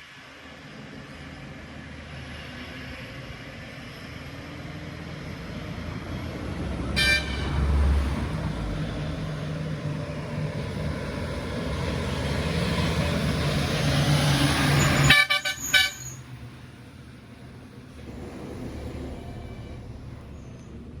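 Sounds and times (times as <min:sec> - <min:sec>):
truck diesel engine passing: 0:00.0 - 0:21.0
short horn toots: 0:15.0 - 0:16.2.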